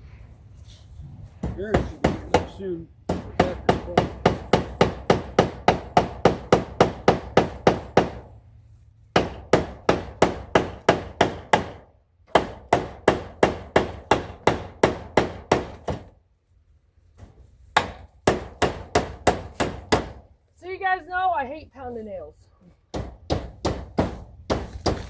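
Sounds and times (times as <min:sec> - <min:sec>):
hammer driving nails into wood: 0:01.4 - 0:08.3, 0:09.1 - 0:16.2, 0:17.2 - 0:20.3, 0:22.9 - 0:25.0.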